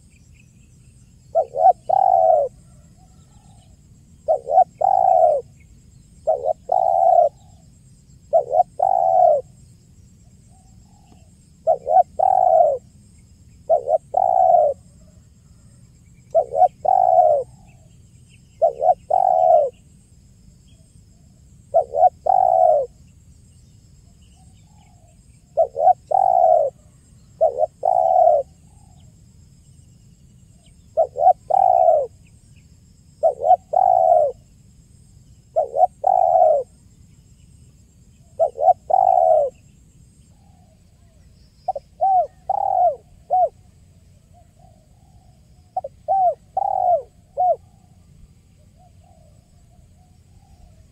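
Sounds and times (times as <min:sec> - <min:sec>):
dove cooing: 0:01.3 - 0:05.6, 0:06.2 - 0:09.6, 0:10.5 - 0:12.9, 0:13.6 - 0:15.7, 0:16.3 - 0:17.9, 0:18.6 - 0:19.8, 0:21.7 - 0:23.0, 0:24.6 - 0:29.1, 0:30.6 - 0:32.2, 0:33.2 - 0:34.4, 0:35.5 - 0:36.8, 0:38.3 - 0:39.7, 0:40.5 - 0:43.7, 0:44.3 - 0:48.0.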